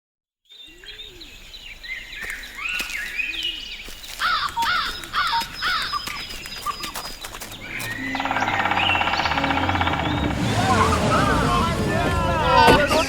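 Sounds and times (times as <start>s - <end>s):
birds chirping: 0.5s - 13.0s
birds sliding whistles: 2.2s - 11.7s.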